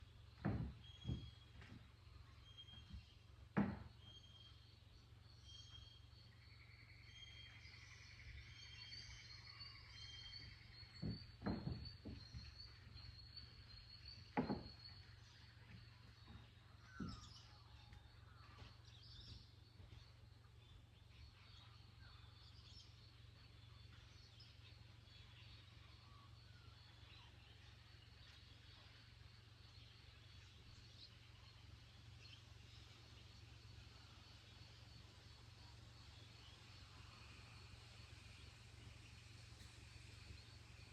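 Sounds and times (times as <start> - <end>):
small birds chirping and trilling: 0.0 - 40.9
dull thumps: 0.3 - 1.9, 2.9 - 4.0, 10.8 - 13.0, 13.8 - 17.4.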